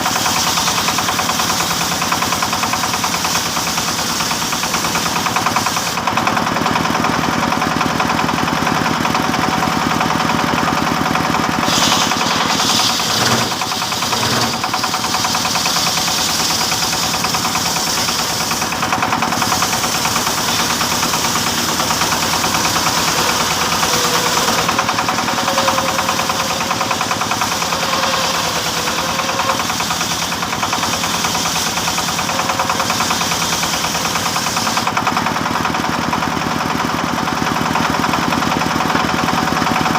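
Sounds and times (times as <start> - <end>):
saw cutting wood hiss: 0.0 - 6.0, 11.2 - 34.9
sawmill engine knocking: 0.0 - 39.9.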